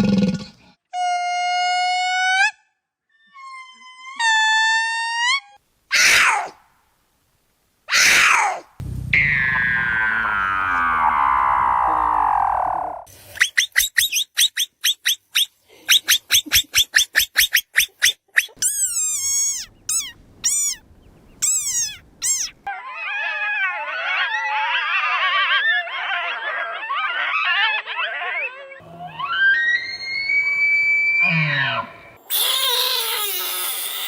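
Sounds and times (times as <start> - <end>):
falling animal call: 7.9 - 13.1, 27.0 - 33.8.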